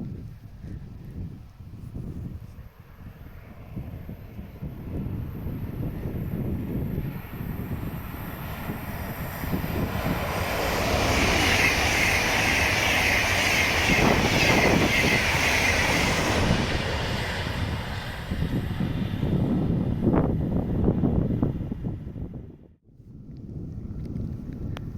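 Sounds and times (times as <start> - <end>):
wind rumbling on microphone: 0.0 - 24.9
train passing: 2.3 - 22.0.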